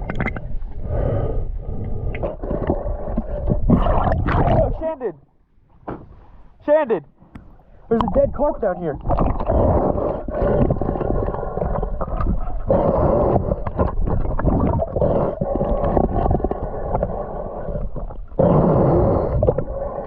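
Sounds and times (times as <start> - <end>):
muffled underwater sloshing rumble: 0.0 - 6.5, 7.2 - 20.0
water splashes: 3.2 - 5.0, 7.9 - 9.8.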